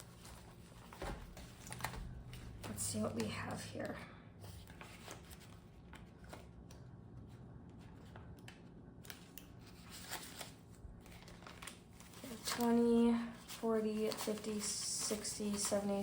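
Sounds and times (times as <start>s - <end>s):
paper banknotes rustling: 0.0s - 3.6s, 4.5s - 6.5s, 7.8s - 16.0s.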